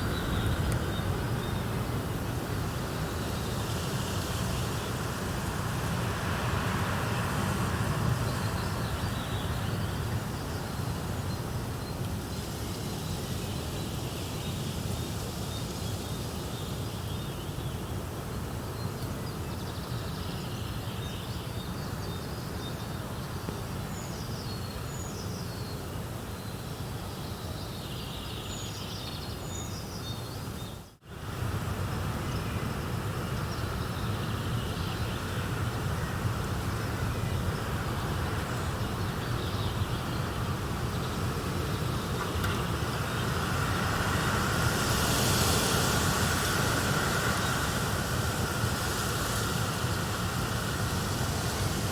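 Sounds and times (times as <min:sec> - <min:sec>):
steady rushing noise: 0:00.0 - 0:11.7, 0:35.3 - 0:51.9.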